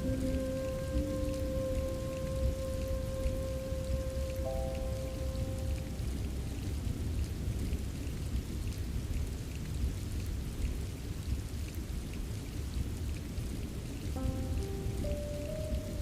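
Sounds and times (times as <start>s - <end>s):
steady rainfall: 0.0s - 16.0s.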